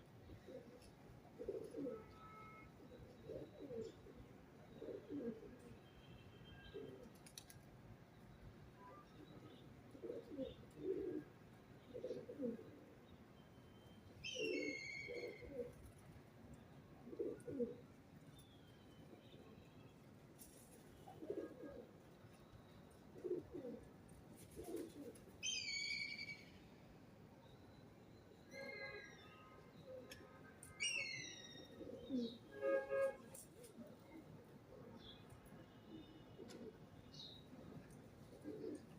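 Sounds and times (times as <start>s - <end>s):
pigeons cooing: 0.4s - 2.2s, 2.9s - 5.5s, 9.9s - 11.3s, 11.9s - 12.9s, 14.3s - 15.8s, 17.1s - 17.8s, 21.1s - 21.9s, 23.2s - 25.2s, 31.7s - 32.4s, 38.2s - 38.9s.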